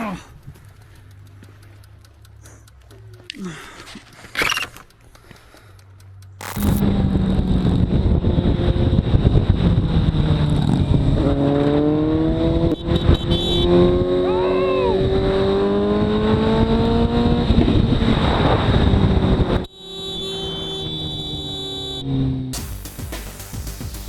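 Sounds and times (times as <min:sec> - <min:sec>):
motorcycle engine accelerating: 0:06.1 - 0:22.8.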